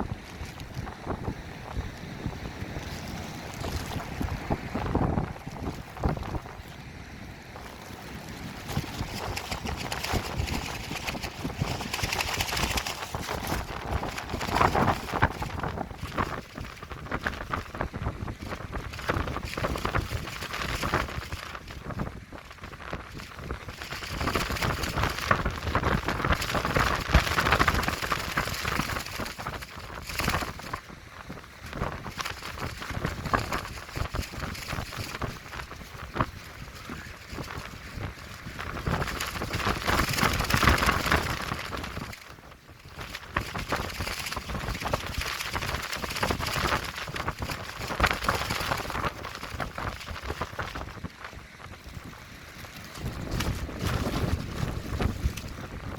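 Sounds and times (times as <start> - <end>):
low wind rumble on microphone: 0.0 - 55.9
plastic sheeting flapping in wind: 0.0 - 55.9.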